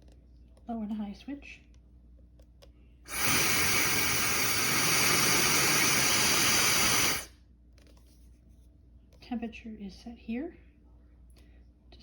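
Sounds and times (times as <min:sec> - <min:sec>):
hair dryer blowing: 0:03.1 - 0:07.3
hair dryer switch: 0:03.1 - 0:07.3.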